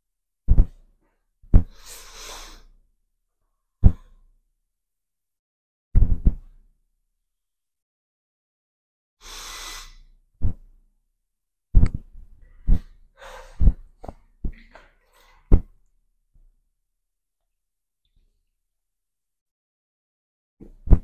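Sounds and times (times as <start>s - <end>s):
faint breathing: 1.6s - 2.8s, 12.5s - 14.2s
long breathy exhale: 1.7s - 2.7s, 9.2s - 10.0s.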